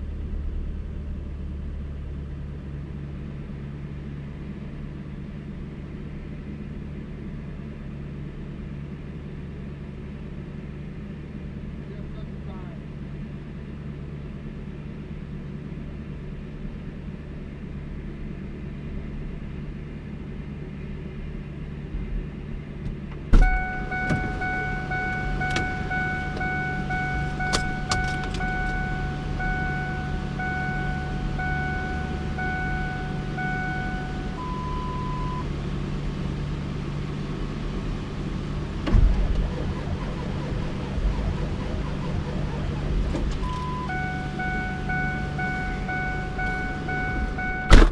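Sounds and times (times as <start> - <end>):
dashboard warning chime: 23.4 - 35.4, 39.1 - 47.9
truck engine idling: 23.4 - 47.9
sharp thump: 38.8 - 39.6, 47.7 - 47.9.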